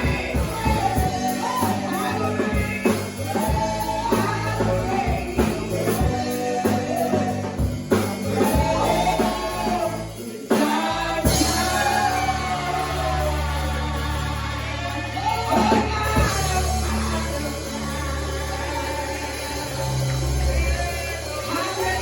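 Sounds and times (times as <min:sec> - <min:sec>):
drum beat: 0:00.0 - 0:14.4
band playing: 0:00.0 - 0:22.0
voices singing gospel: 0:00.0 - 0:22.0.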